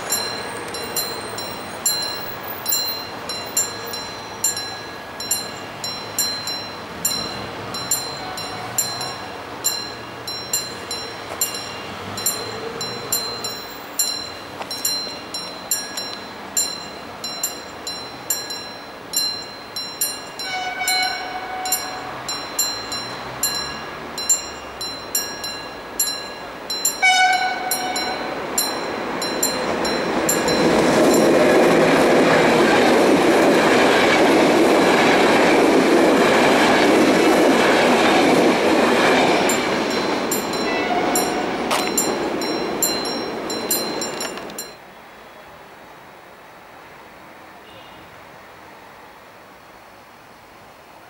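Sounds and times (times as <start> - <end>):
train wheels clicking over rail joints: 0.0 - 44.8
train passing close: 0.0 - 51.0
multi-tone train horn: 8.1 - 9.4, 20.4 - 22.3, 27.0 - 28.4, 40.7 - 41.7, 47.6 - 48.2.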